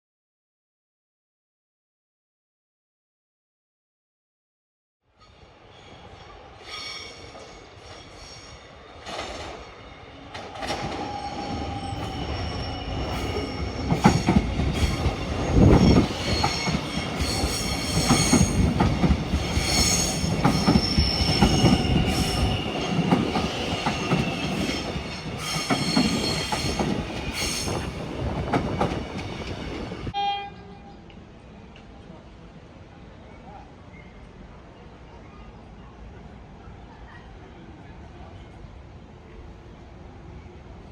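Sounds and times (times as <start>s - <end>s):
train rumbling past: 5.2s - 33.0s.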